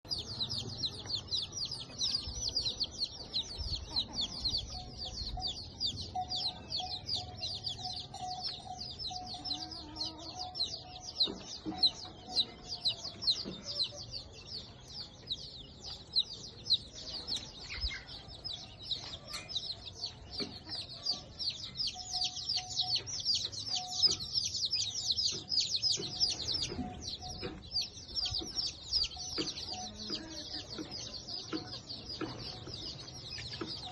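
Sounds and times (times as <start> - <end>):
birds chirping: 0.0 - 33.9
chicken-like clucks: 0.1 - 15.3, 17.2 - 33.9.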